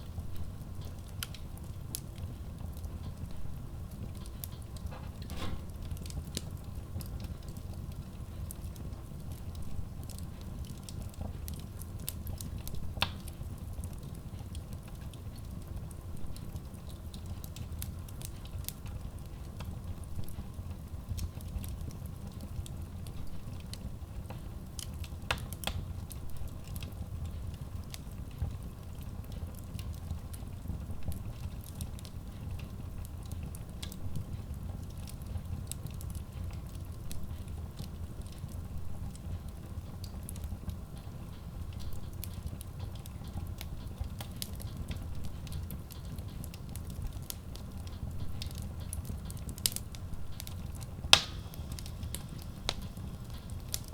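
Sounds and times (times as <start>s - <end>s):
fire crackling: 0.0s - 53.9s
rumble of flames: 0.0s - 53.9s
sharp pops of burning wood: 4.2s - 7.6s, 24.8s - 25.9s, 44.1s - 53.9s.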